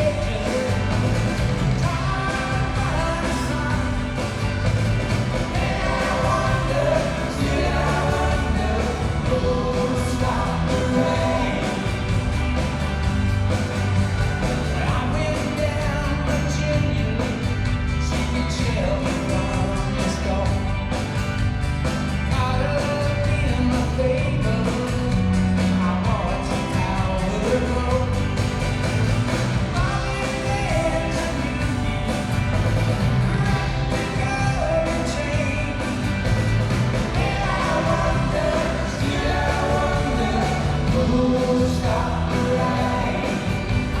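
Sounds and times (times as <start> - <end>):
live rock band: 0.0 - 44.0
lead vocalist singing: 1.8 - 4.1, 5.5 - 12.1, 37.1 - 44.0.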